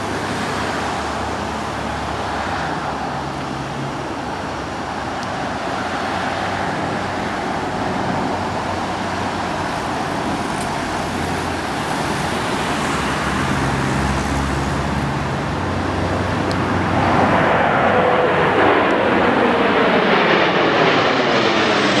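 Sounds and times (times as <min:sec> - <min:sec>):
jet aircraft passing: 0:00.0 - 0:22.0
steady traffic roar: 0:00.0 - 0:22.0.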